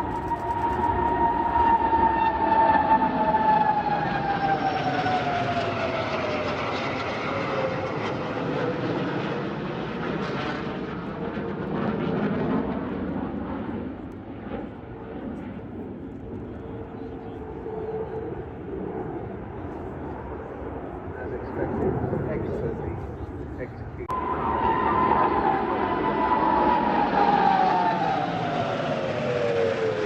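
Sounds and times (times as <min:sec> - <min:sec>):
jet aircraft roaring past: 0:00.0 - 0:30.0.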